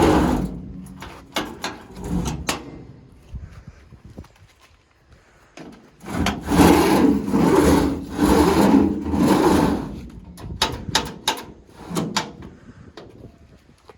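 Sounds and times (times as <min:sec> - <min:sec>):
sharp clicks and knocks: 0:00.0 - 0:02.9, 0:10.0 - 0:12.5
metal drawer rolling on rollers: 0:00.0 - 0:03.0, 0:06.0 - 0:12.4.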